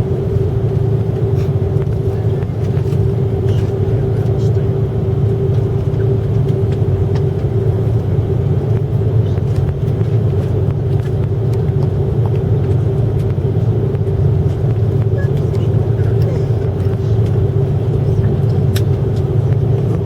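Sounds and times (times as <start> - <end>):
airliner cabin rumble: 0.0 - 20.0
steady hum: 0.0 - 20.0.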